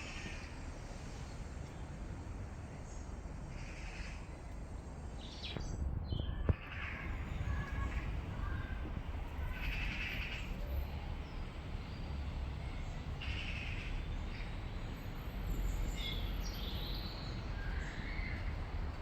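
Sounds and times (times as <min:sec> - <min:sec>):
birds calling harshly: 0:09.4 - 0:10.6, 0:13.2 - 0:14.4.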